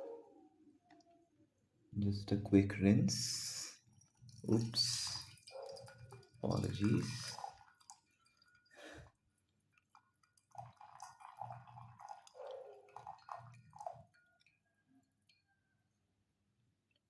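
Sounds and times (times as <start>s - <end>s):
small wet sounds: 3.3s - 15.5s.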